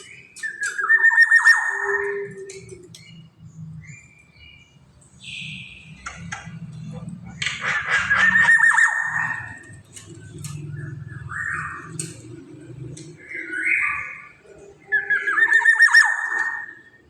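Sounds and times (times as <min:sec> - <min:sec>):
harsh nasal bird calls: 0:00.0 - 0:12.3
bird warbling song: 0:00.0 - 0:17.0.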